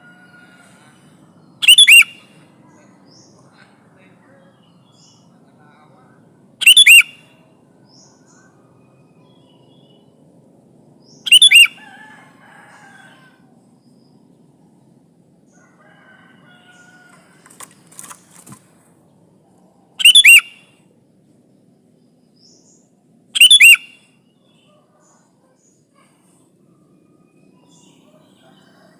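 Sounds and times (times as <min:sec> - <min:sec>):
faint bird chirps: 0:00.0 - 0:10.3, 0:11.0 - 0:12.0, 0:19.5 - 0:28.9
bird giving loud short calls: 0:01.6 - 0:02.3.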